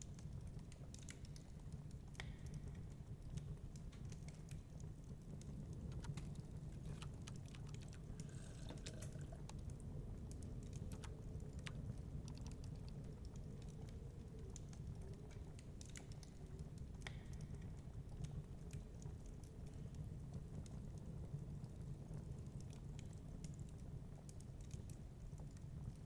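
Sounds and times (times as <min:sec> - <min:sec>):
wood fire crackling and popping: 0:00.0 - 0:26.0
low steady rumble: 0:04.5 - 0:12.0.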